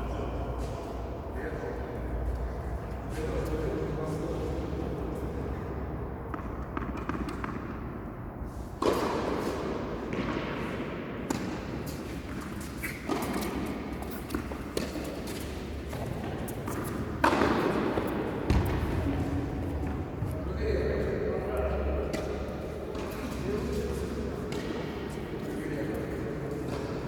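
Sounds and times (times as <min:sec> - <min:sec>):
tennis ball impacts: 0:08.8 - 0:20.3
steady low hum: 0:17.0 - 0:25.3.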